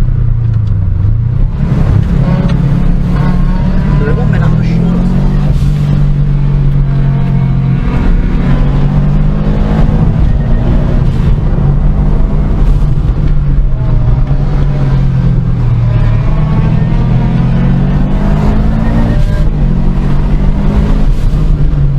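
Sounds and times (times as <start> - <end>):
car engine running: 0.0 - 21.9.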